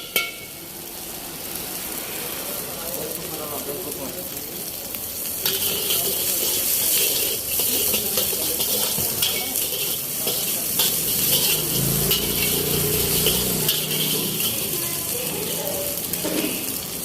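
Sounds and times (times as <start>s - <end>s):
spatula clinking and scraping pan: 0.0s - 0.6s, 5.3s - 17.0s
food sizzling in a wok: 0.0s - 17.0s.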